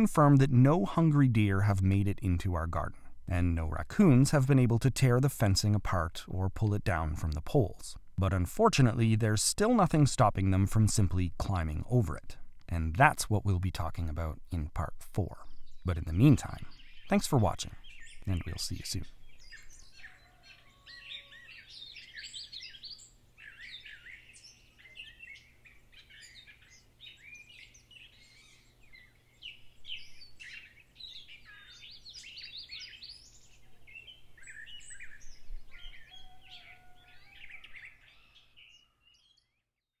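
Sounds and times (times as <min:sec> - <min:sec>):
birds chirping and singing: 0:13.2 - 0:39.8.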